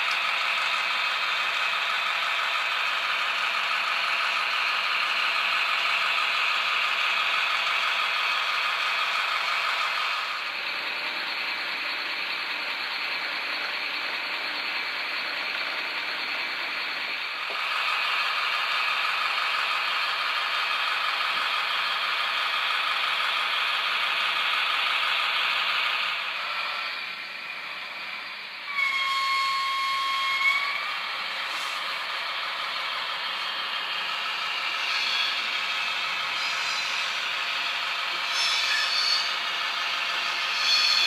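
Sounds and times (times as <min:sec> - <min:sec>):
model locomotive engine sound: 0:00.0 - 0:41.0
locomotive horn: 0:28.7 - 0:31.0.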